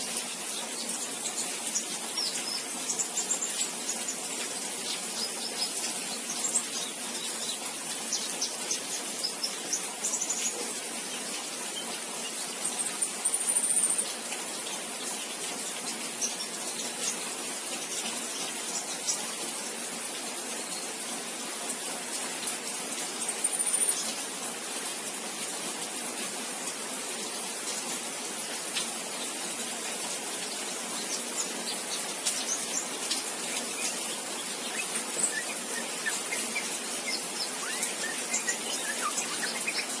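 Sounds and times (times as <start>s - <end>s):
steady hiss: 0.0s - 40.0s
young bird chirping: 32.5s - 40.0s.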